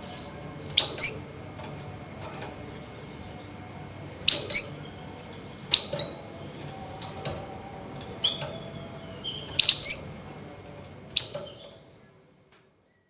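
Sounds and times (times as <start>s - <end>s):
bird chirping calls: 0.1s - 1.4s, 4.2s - 6.6s, 8.2s - 10.3s, 11.1s - 13.0s.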